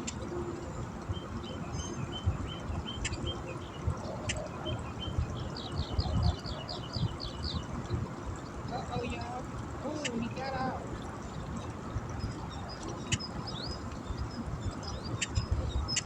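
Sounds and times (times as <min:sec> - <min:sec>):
bird singing: 0:00.0 - 0:07.8.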